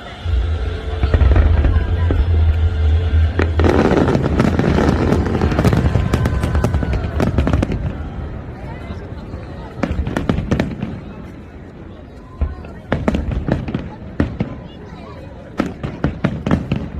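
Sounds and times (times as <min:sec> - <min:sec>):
firework booms: 0:00.3 - 0:08.2.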